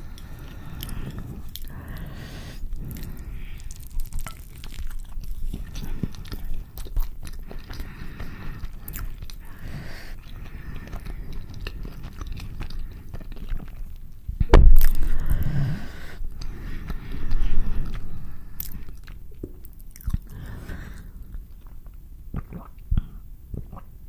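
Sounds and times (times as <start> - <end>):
wet chewing with crackles: 0.0 - 23.9
biting into tortilla: 2.8 - 7.9.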